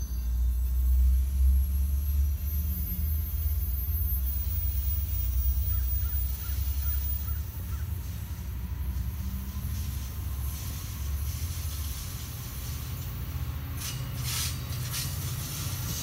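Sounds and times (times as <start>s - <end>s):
passenger train rumbling: 0.0s - 16.0s
faint short bird calls: 5.7s - 7.9s.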